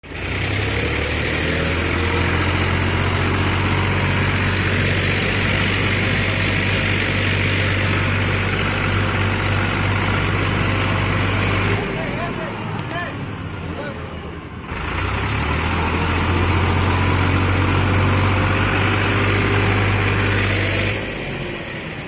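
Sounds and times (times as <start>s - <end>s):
diesel tractor engine running: 0.0s - 22.0s.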